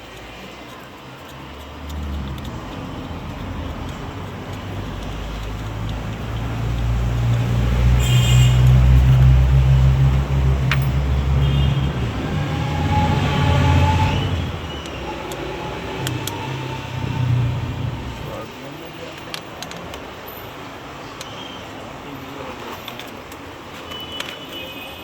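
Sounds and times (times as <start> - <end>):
vehicle engine rumbling: 0.0 - 20.2
high squeal: 10.9 - 18.4.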